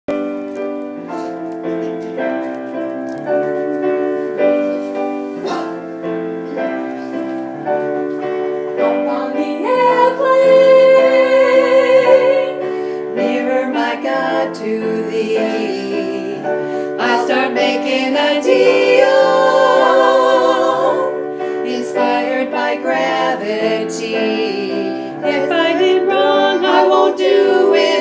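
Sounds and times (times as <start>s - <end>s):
piano chords: 0.0s - 28.0s.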